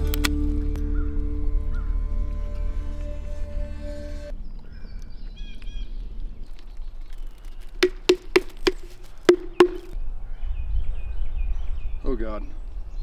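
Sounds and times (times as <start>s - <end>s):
sharp knocks: 7.8s - 10.0s.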